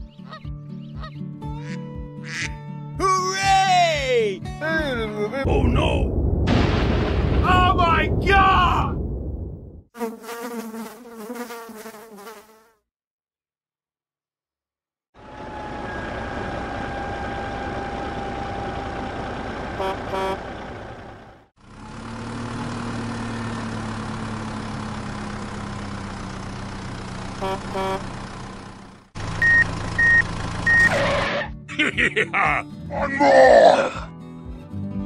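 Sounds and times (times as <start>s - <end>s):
vehicle engine drone: 15.2s - 31.4s
double horn toot: 19.8s - 20.5s, 27.4s - 28.2s
high reversing beeps: 29.4s - 31.1s.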